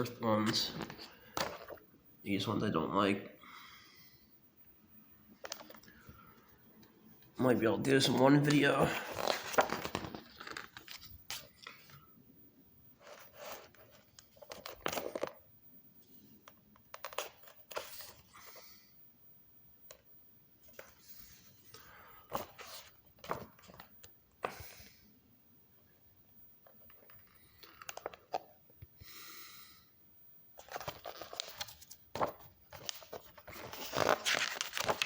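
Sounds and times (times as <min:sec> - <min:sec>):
book pages turning: 0:00.4 - 0:01.8, 0:05.4 - 0:06.3, 0:08.3 - 0:12.0, 0:13.0 - 0:15.4, 0:16.9 - 0:18.3, 0:22.2 - 0:24.6, 0:26.9 - 0:28.5, 0:30.6 - 0:35.0.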